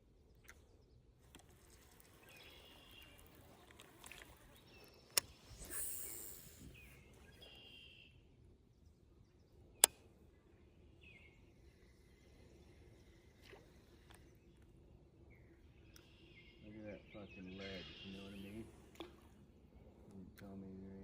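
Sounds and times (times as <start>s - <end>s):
brief hiss: 5.2s - 7.0s
short high chirps: 5.5s - 6.9s.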